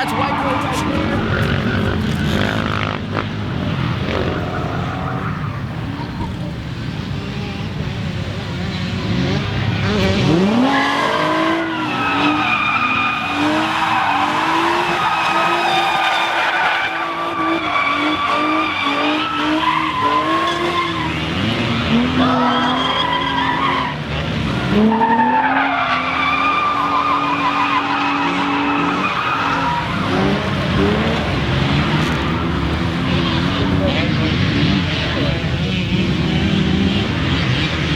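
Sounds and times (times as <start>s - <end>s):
tyres squealing: 0.0s - 2.8s, 11.2s - 24.1s, 24.8s - 33.8s
car engine revving hard: 0.0s - 5.3s, 8.4s - 37.9s.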